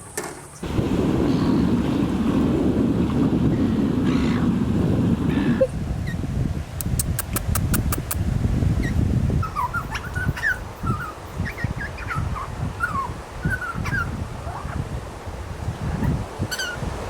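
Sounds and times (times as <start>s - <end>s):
wind rumble on microphone: 0.0s - 17.0s
high squeaky animal chirps: 8.8s - 14.0s.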